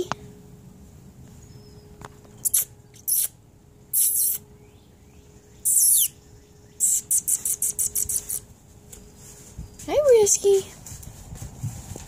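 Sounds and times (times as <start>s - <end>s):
small birds chirping: 1.3s - 10.7s.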